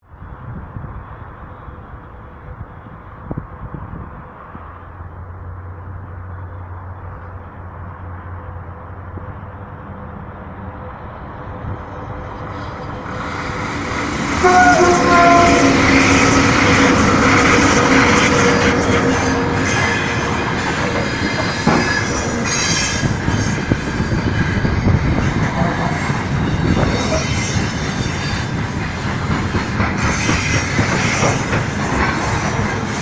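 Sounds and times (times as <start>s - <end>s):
freight train passing: 0.1s - 33.0s
rumbling train wheels: 2.4s - 33.0s
shrill wheel squeal on rails: 10.8s - 33.0s.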